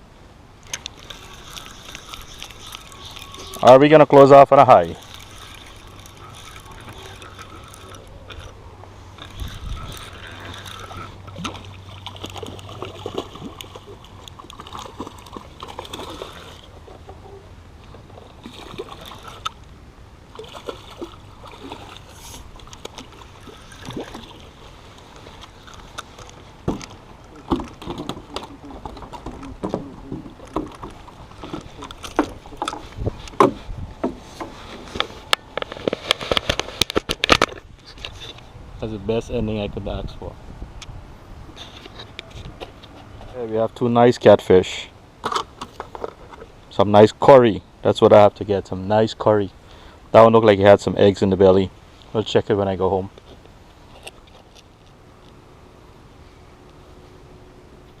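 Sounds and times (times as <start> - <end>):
low steady hum: 0.0 - 58.0
fishing rod and reel clicks: 0.6 - 3.7, 4.8 - 12.4.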